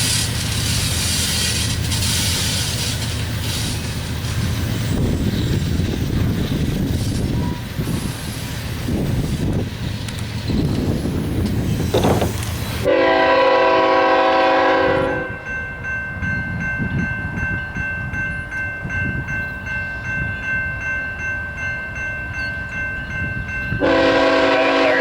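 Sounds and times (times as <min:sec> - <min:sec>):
train rumbling past: 0:00.0 - 0:25.0
locomotive air horn blast: 0:12.8 - 0:15.4, 0:23.8 - 0:25.0.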